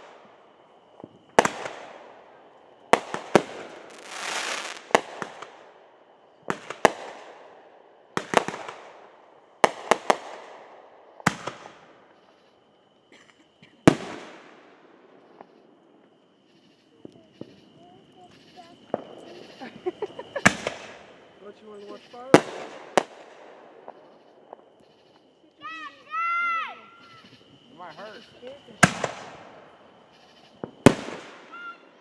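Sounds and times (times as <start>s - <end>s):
fireworks crackling burst: 0.0s - 12.7s, 13.9s - 32.0s
fireworks bangs echoing: 1.0s - 2.3s, 2.9s - 5.8s, 6.4s - 12.5s, 13.8s - 15.8s, 17.0s - 26.2s, 28.0s - 32.0s.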